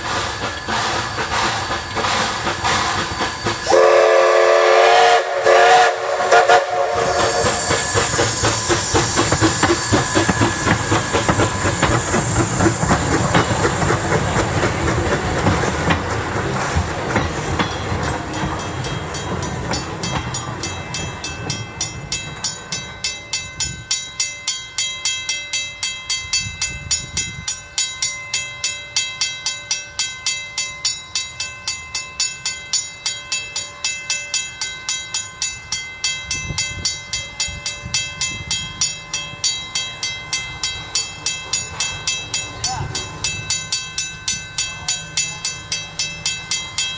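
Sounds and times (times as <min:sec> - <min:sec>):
steam hissing: 0:00.0 - 0:23.8
train wheels clicking on track: 0:00.0 - 0:46.9.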